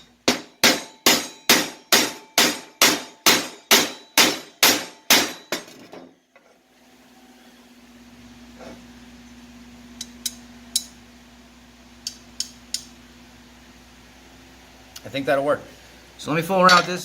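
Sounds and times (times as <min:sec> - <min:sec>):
hammer striking steel: 0:00.0 - 0:06.1, 0:10.0 - 0:11.0, 0:16.6 - 0:17.0.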